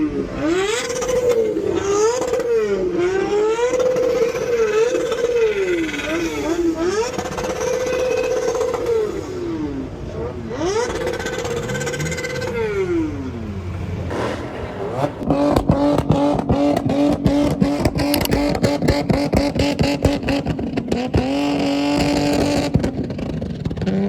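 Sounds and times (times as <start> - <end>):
car engine revving hard: 10.5 - 24.0
engine crackling stutter: 10.5 - 24.0.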